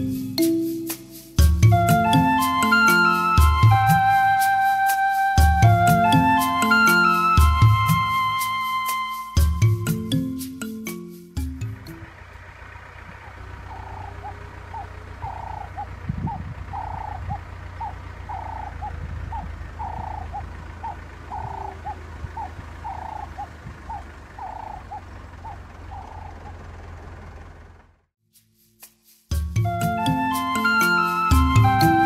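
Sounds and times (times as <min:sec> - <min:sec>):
bird calling two-note phrase: 0:01.6 - 0:10.1
steady low rumble: 0:11.7 - 0:28.0.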